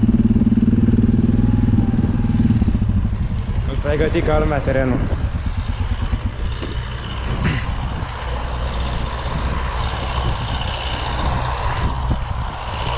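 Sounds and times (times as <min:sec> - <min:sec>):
tractor diesel engine running: 0:00.0 - 0:12.9.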